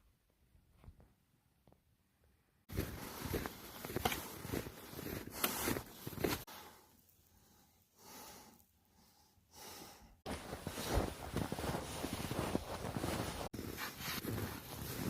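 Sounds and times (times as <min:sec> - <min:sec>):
footsteps crunching in snow: 0:02.7 - 0:06.5, 0:10.3 - 0:15.0
soft breaths: 0:02.8 - 0:14.9.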